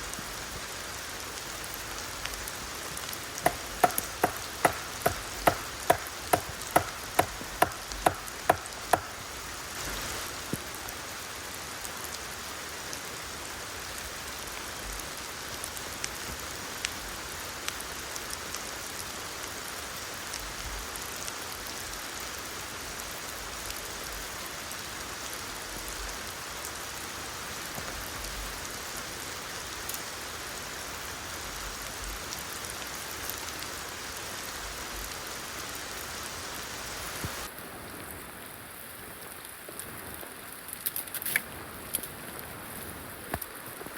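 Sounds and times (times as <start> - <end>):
steady rain falling: 0.0 - 43.9
drops ticking: 3.4 - 9.2
sharp knocks: 3.4 - 9.2.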